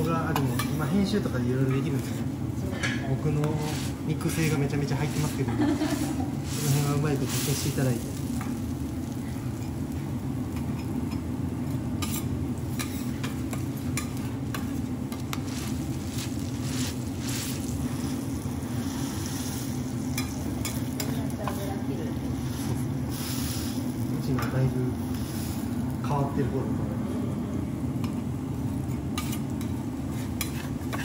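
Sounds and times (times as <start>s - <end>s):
steady low hum: 0.0s - 31.0s
metal spatulas scraping and tapping: 0.4s - 0.8s, 12.0s - 17.0s, 20.1s - 21.6s, 28.9s - 31.0s
fat sizzling on a griddle: 3.1s - 26.6s, 28.0s - 31.0s.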